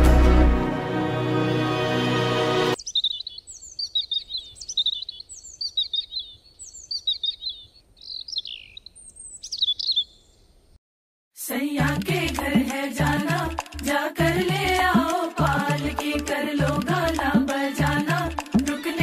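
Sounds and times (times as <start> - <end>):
songbird chirping: 2.8 - 10.8.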